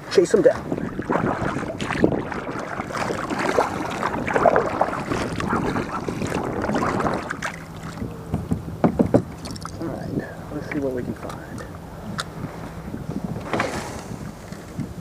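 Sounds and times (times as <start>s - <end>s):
wind on microphone: 0.0s - 15.0s
water splashing against kayak hull: 0.4s - 10.0s.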